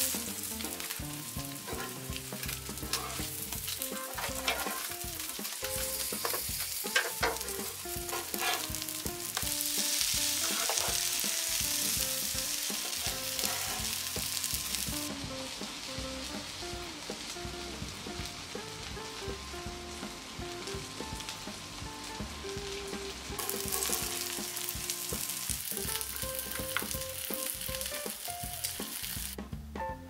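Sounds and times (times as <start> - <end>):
fish sizzling in hot oil: 0.0 - 29.4
utensils scraping a pan: 0.8 - 11.4, 12.6 - 14.3, 23.4 - 24.5.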